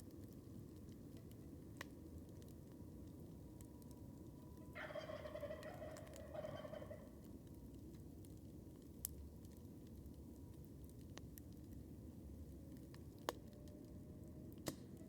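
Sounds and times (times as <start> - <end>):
campfire crackling: 0.0 - 15.0
distant turkey gobbling: 4.8 - 7.1.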